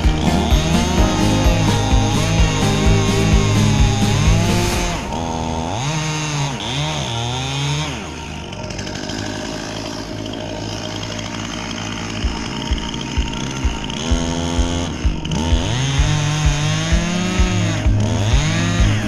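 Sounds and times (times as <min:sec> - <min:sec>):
music with drum beat: 0:00.0 - 0:05.0, 0:12.2 - 0:19.0
chainsaw revving and cutting: 0:00.0 - 0:19.0.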